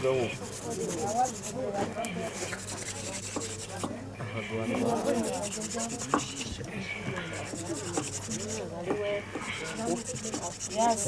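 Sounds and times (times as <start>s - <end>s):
wooden sticks rubbing: 0.0s - 1.6s, 2.3s - 3.9s, 4.8s - 6.6s, 7.2s - 8.7s, 9.3s - 11.0s.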